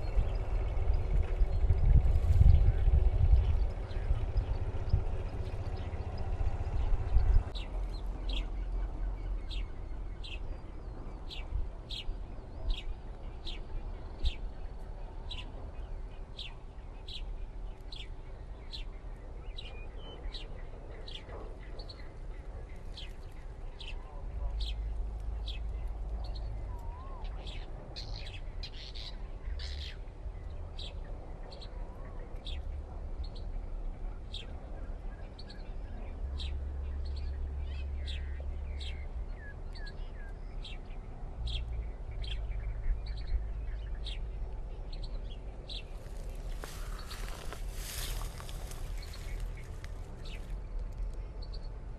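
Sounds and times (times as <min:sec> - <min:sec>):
small birds chirping: 0:00.0 - 0:51.9
steady low rumble: 0:00.0 - 0:51.9
small bird chirping: 0:44.9 - 0:50.6.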